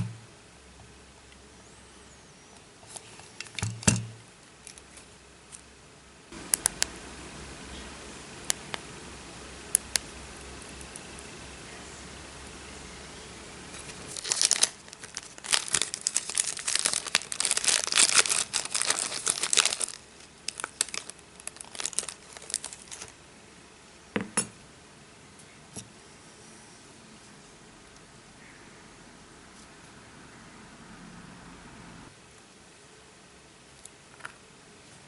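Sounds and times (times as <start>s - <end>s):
thin plastic crinkling and tearing: 13.8s - 23.2s.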